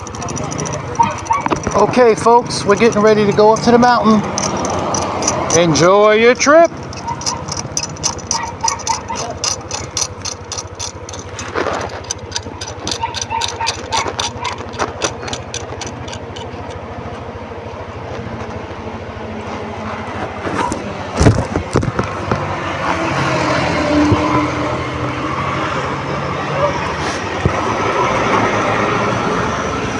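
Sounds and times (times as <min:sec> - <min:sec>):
rapid regular ticking: 0:00.0 - 0:16.9
scooter engine running: 0:00.0 - 0:29.9.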